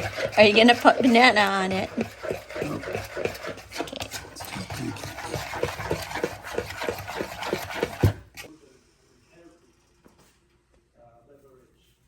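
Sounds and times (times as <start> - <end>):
utensil knock: 0.0 - 8.3
kitchen utensil strokes in bowl: 0.0 - 8.5.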